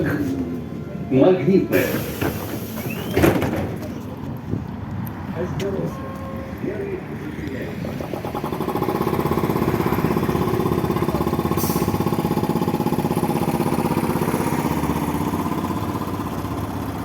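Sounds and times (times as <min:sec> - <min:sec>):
air hiss: 0:01.8 - 0:03.2
air compressor chugging: 0:07.7 - 0:17.0.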